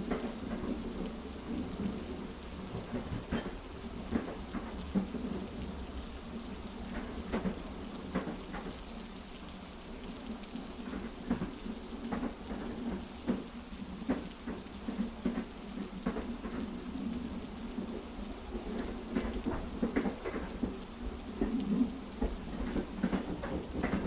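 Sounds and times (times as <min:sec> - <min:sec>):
train wheels clacking: 0:00.0 - 0:05.4, 0:18.6 - 0:24.0
heavy rain falling: 0:00.0 - 0:24.0.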